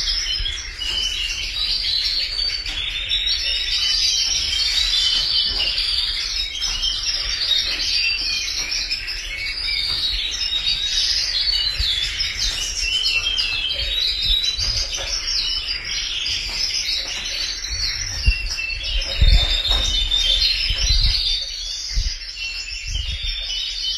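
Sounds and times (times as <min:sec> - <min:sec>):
canaries singing: 0:00.0 - 0:23.9.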